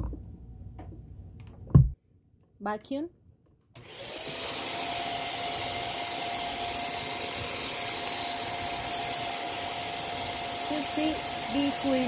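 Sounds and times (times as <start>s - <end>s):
vacuum cleaner whining: 3.8s - 12.0s.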